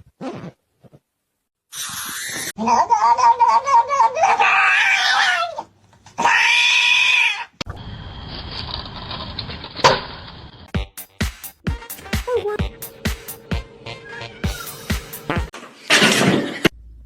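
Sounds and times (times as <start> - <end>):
cat yowling: 4.2 - 5.6, 6.2 - 7.5.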